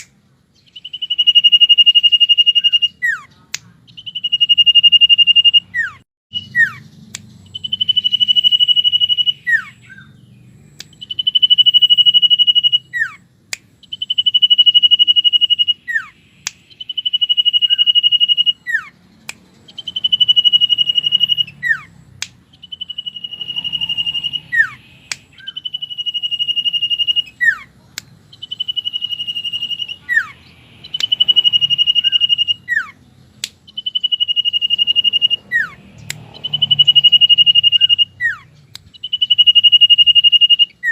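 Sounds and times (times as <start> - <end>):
short sharp clicks: 0.0 - 0.2, 10.7 - 11.2, 16.4 - 16.8, 19.2 - 19.6, 22.1 - 22.4, 25.0 - 25.4, 33.3 - 34.1, 36.0 - 36.8, 38.7 - 39.2
bird trilling and whistling: 0.0 - 40.9.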